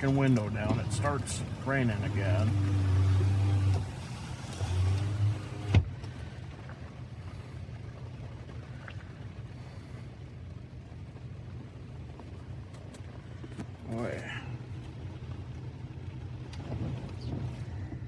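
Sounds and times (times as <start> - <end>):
car engine idling: 0.0 - 18.0
power window motor: 0.1 - 6.0.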